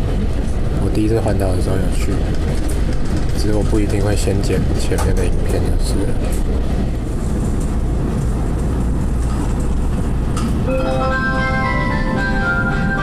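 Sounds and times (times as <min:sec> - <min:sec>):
train rumble from inside: 0:00.0 - 0:13.0
chiming melody over loudspeaker: 0:10.7 - 0:13.0.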